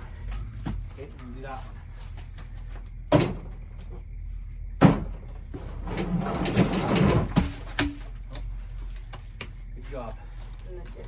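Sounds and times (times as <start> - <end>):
log scraping along truck bed: 5.5 - 10.4.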